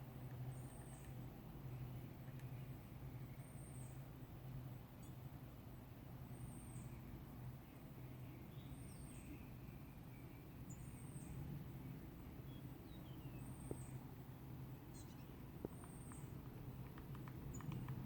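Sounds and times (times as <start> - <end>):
lower bird chirps: 7.7 - 11.4, 12.4 - 14.0, 14.8 - 16.4.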